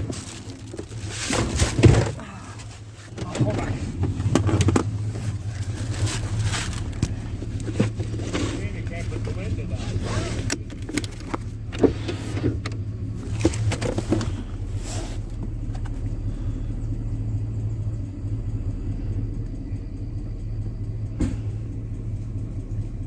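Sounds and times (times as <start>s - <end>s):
knocks and rattles: 0.0s - 16.2s
truck engine running: 0.0s - 23.0s.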